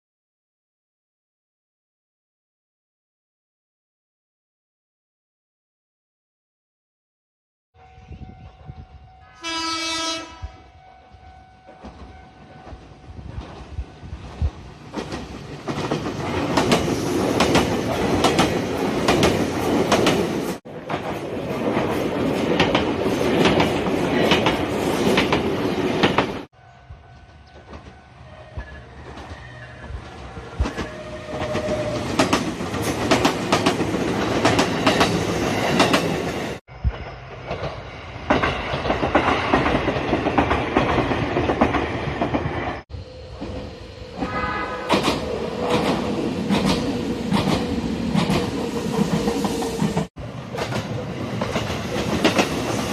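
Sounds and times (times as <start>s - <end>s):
train rumbling on rails: 7.8s - 52.9s
wheels clacking over rail joints: 37.5s - 42.6s, 44.2s - 52.9s.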